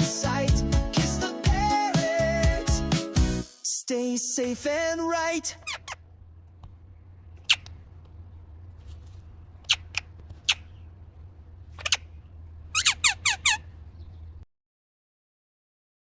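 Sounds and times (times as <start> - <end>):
high bird-like chirps: 12.8 - 13.6.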